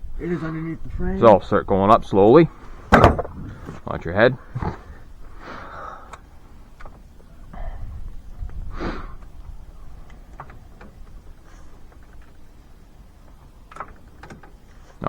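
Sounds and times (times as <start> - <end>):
floor jack clicks and knocks: 2.9 - 3.8.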